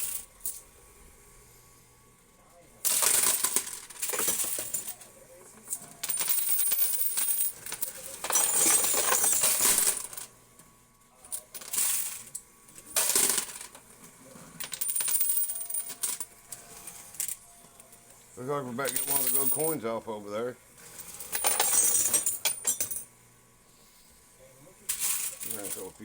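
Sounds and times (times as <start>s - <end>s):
coins clattering in machine: 0.0s - 0.6s, 2.8s - 10.3s, 11.3s - 13.8s, 14.5s - 17.5s, 18.7s - 19.8s, 20.8s - 23.1s, 24.9s - 26.0s.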